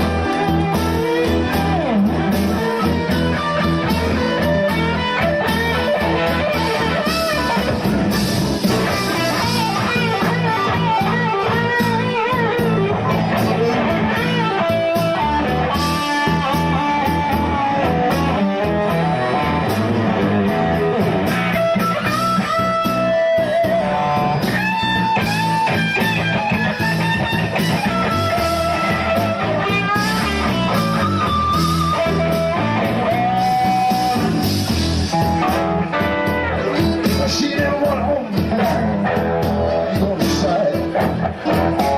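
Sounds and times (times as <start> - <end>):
blues-rock music: 0.0 - 41.9
lead guitar bent notes: 0.0 - 41.9.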